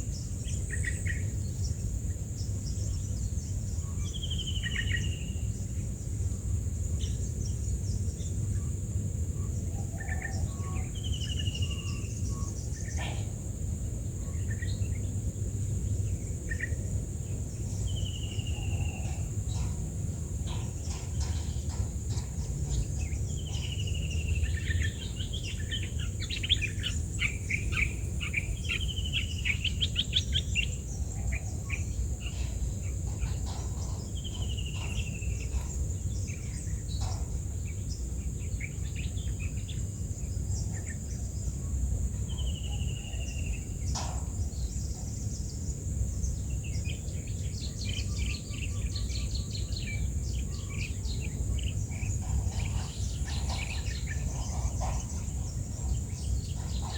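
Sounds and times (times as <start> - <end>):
high insect drone: 0.0 - 56.9
rapid bird chirping: 15.9 - 41.4, 42.3 - 56.9.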